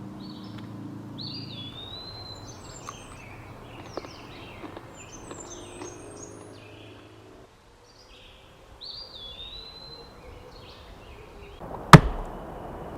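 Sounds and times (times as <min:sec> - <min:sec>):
birds chirping and calling: 0:01.2 - 0:07.1
whistled bird call: 0:01.2 - 0:07.1.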